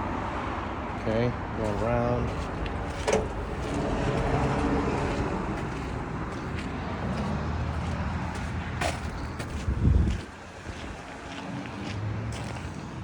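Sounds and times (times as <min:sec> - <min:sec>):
road traffic rumble: 0:00.0 - 0:13.0
heavy thump: 0:02.8 - 0:04.4.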